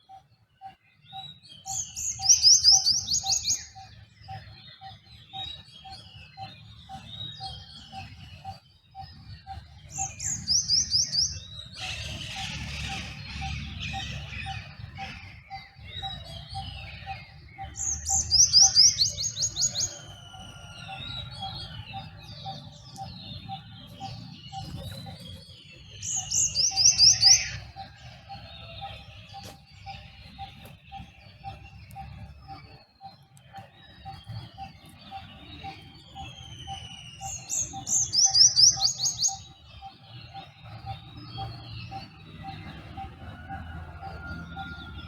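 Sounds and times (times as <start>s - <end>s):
bird trilling song: 0.0s - 45.0s
bird chirps and whistles: 36.1s - 39.4s.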